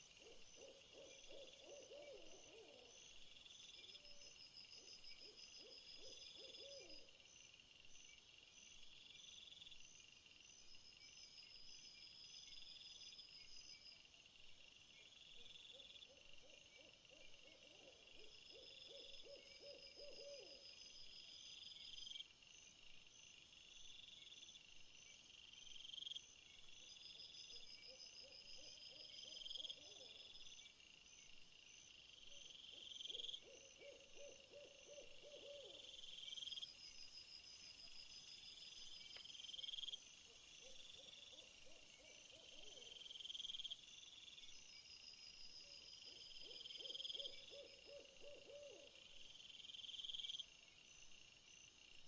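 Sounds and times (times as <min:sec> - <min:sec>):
insects chirping: 0:17.8 - 0:52.0.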